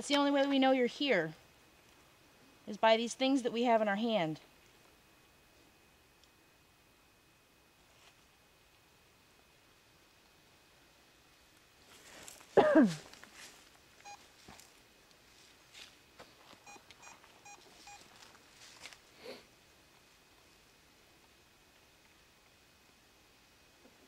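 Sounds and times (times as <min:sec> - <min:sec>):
short electronic beeps: 0:16.6 - 0:18.0.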